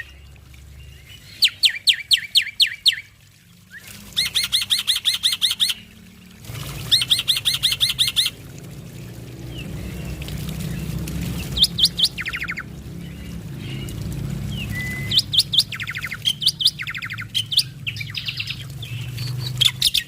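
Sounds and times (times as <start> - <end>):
low steady hum: 0.0 - 20.0
bird singing whistled notes: 14.5 - 20.0.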